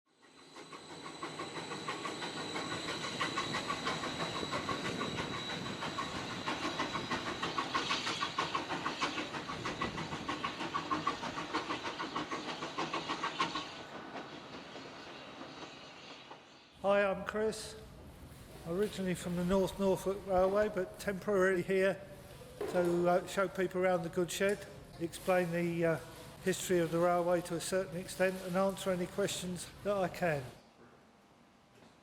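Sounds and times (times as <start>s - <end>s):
train clattering: 0.3s - 16.7s.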